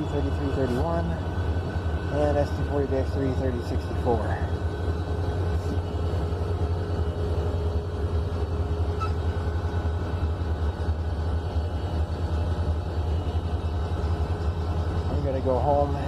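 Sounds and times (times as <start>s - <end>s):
diesel locomotive rumbling: 0.0s - 16.0s.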